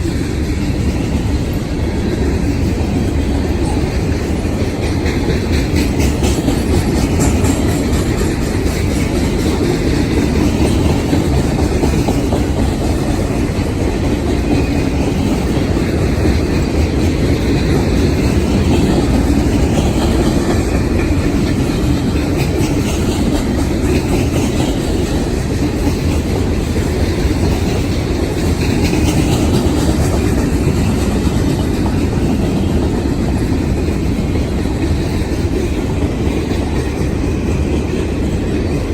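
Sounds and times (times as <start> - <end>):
freight train cars rolling: 0.0 - 38.9
steel wheels clacking on rail joints: 0.0 - 38.9.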